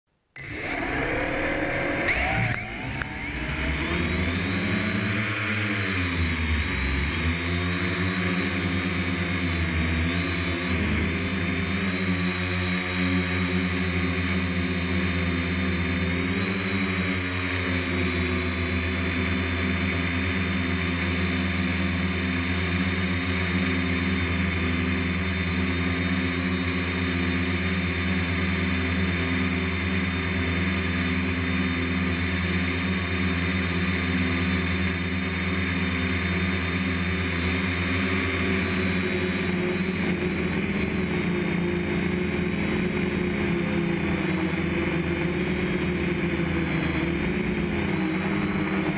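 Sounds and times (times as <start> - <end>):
drone motors whining: 0.4 - 48.9.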